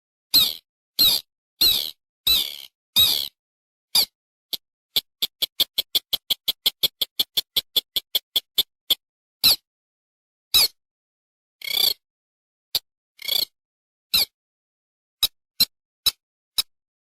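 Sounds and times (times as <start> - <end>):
recorded bird calls: 0.3 - 9.6.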